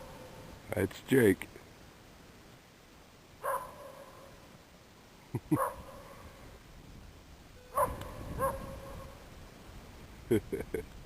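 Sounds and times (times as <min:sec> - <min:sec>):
dog barking: 0:03.4 - 0:04.3, 0:05.6 - 0:06.2, 0:07.7 - 0:09.2.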